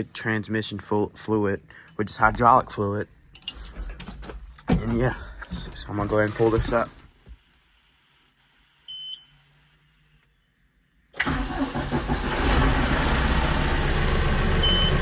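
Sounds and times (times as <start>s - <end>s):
tractor diesel engine starting: 11.2s - 15.0s.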